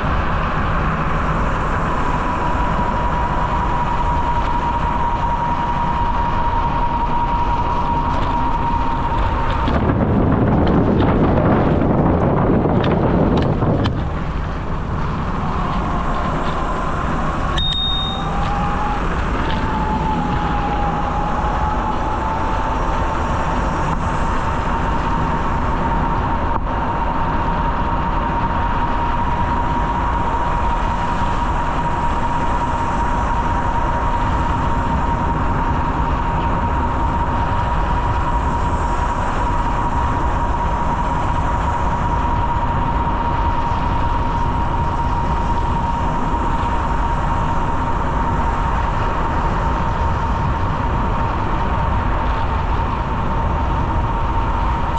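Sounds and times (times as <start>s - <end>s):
bicycle rolling noise: 0.0s - 54.9s
thin steady whine: 0.0s - 54.9s
wind rush: 0.0s - 54.9s
bell-like ding: 17.6s - 18.3s.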